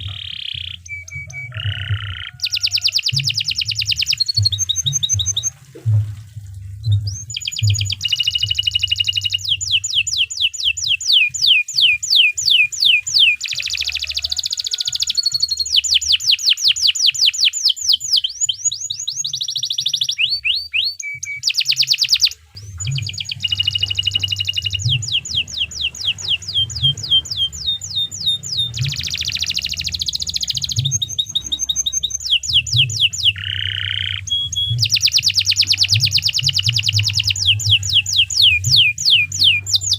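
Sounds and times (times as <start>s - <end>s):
canary singing trills: 0.0s - 5.5s, 6.8s - 39.9s
low hum: 22.4s - 33.5s.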